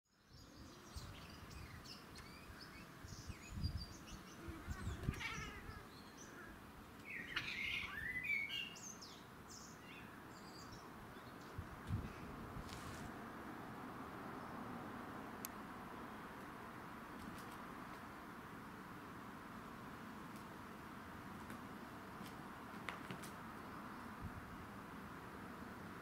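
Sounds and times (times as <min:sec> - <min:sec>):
birds chirping and singing: 0:00.1 - 0:11.6
outdoor background hum: 0:00.1 - 0:26.0.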